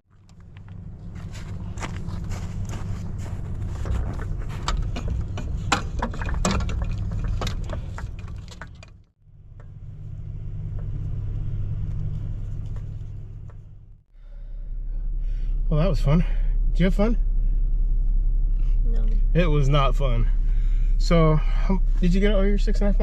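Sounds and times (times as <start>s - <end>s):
sharp clicks and rattles: 3.6s - 9.8s.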